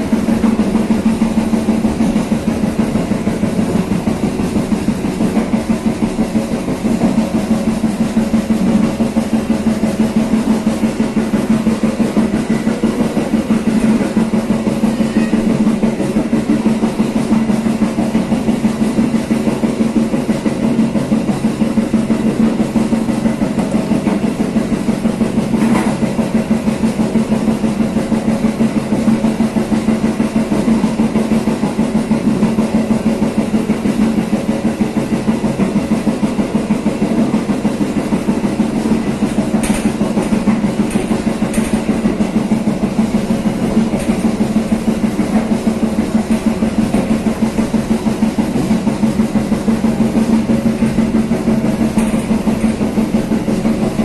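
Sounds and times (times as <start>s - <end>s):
train running with drumming pulse: 0.0s - 54.0s.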